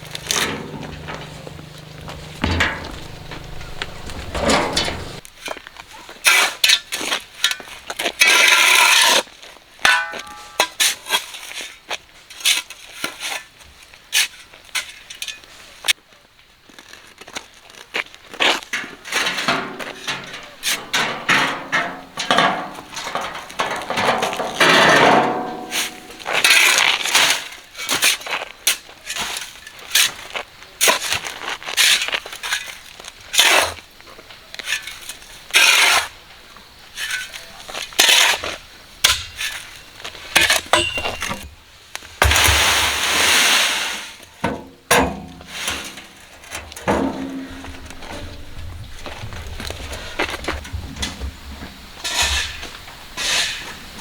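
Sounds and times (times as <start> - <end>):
metal tool scraping gritty surface: 0.0 - 5.2, 22.9 - 27.3.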